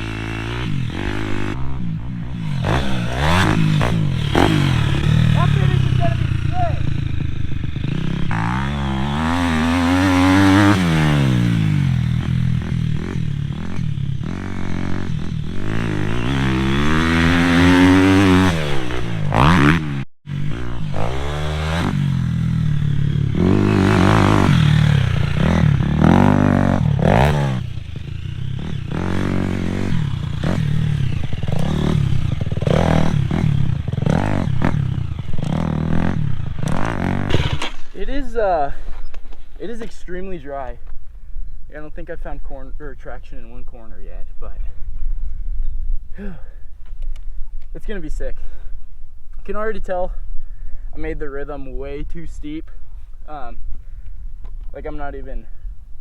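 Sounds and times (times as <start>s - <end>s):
dirt bike engine revving: 0.0s - 40.8s.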